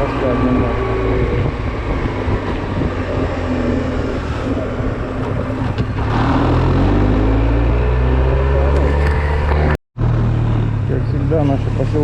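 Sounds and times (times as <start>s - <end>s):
wind noise on microphone: 0.0s - 7.4s.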